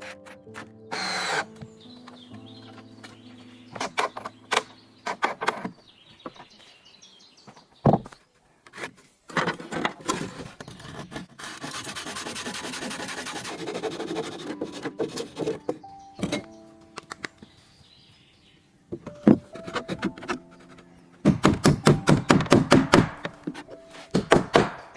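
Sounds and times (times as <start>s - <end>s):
rasping scraping of wood: 8.7s - 15.7s.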